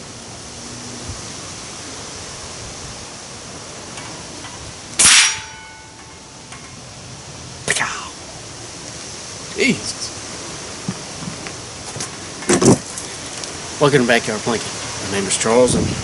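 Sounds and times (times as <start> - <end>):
metallic ring: 4.0 - 6.8.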